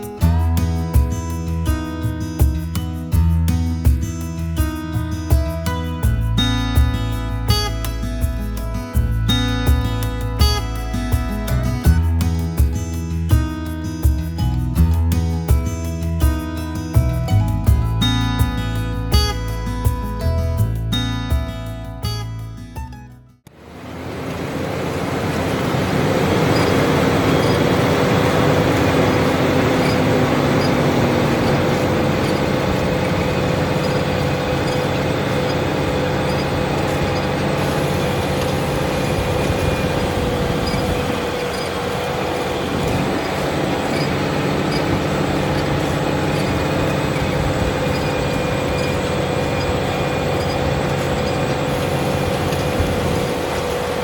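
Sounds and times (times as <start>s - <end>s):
tractor engine running: 0.0s - 22.5s, 23.4s - 54.0s
constant whine: 23.5s - 54.0s.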